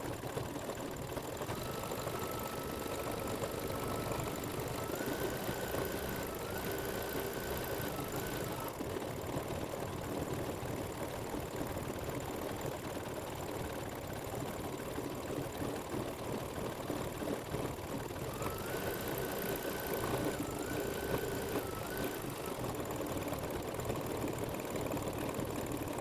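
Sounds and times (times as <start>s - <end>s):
embroidery machine stitching: 0.4s - 12.7s, 18.1s - 26.0s.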